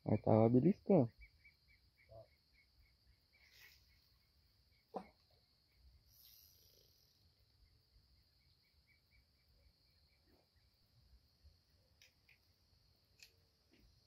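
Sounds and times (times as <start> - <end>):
steady high-pitched hiss: 0.0 - 14.0
faint ticks and clicks: 11.8 - 14.0.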